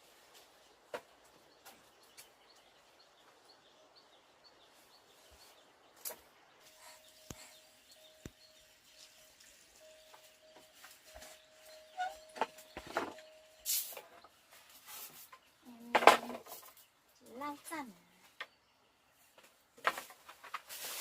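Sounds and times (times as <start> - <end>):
bird chirping softly: 0.0 - 21.0
faint steady tone: 2.8 - 14.8.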